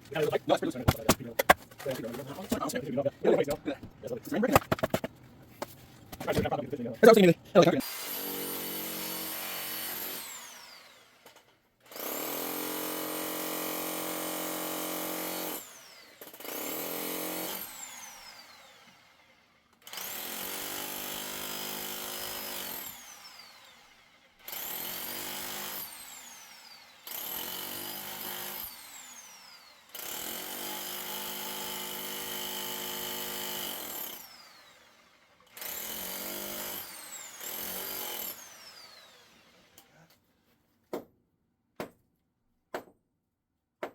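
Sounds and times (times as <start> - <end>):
electric power tool spinning: 7.8 - 19.2, 19.8 - 39.9.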